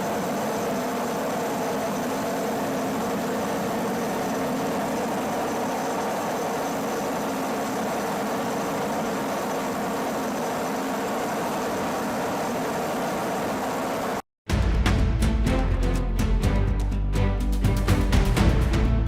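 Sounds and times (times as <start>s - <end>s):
constant hiss: 0.0s - 14.2s
steady engine drone: 0.0s - 14.2s.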